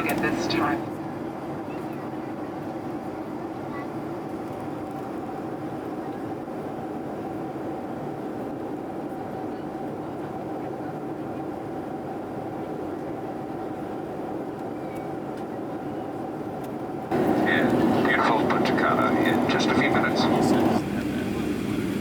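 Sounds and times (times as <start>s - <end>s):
faint steady hum: 0.0s - 0.8s, 17.1s - 20.8s
airliner cabin rushing drone: 0.0s - 0.9s, 17.1s - 22.0s.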